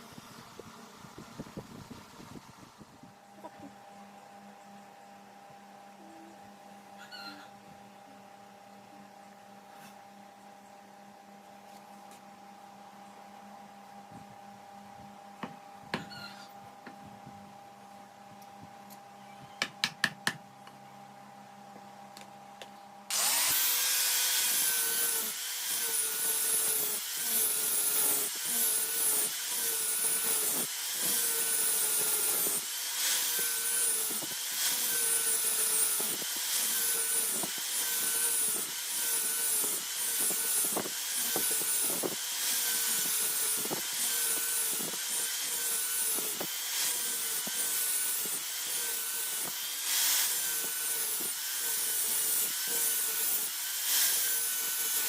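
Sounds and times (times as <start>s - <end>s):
power tool working material: 23.1s - 55.0s.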